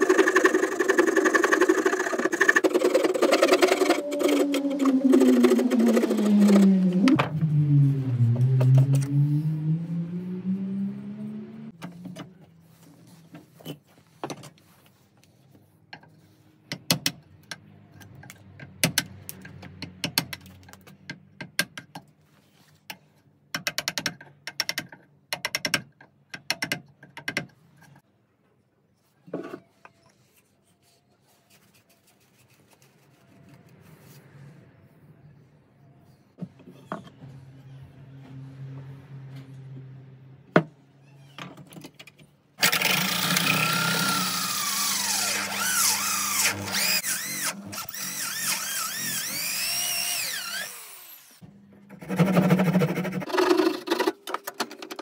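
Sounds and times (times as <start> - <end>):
rising tone: 3.8 - 11.8.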